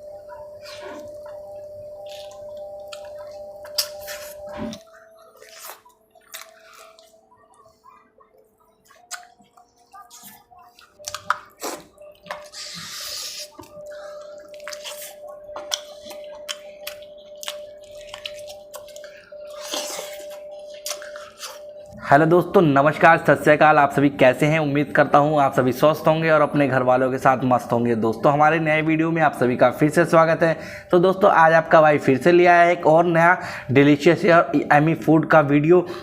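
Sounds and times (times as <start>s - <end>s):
soft background music: 0.0s - 36.0s
wet eating clicks and smacks: 2.0s - 7.2s, 8.6s - 21.7s.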